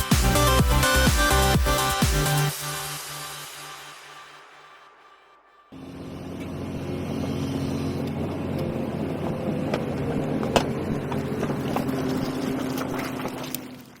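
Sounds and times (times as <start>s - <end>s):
diesel engine running: 5.7s - 14.0s.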